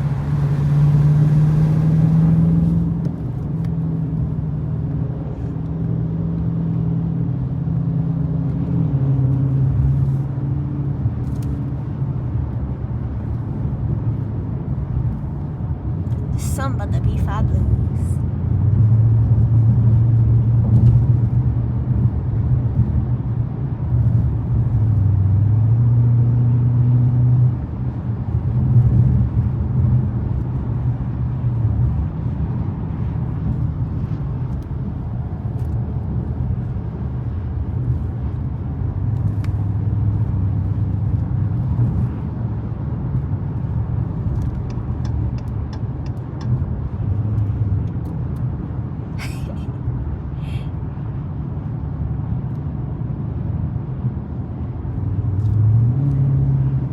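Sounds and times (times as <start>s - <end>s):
car engine droning: 0.0s - 6.4s.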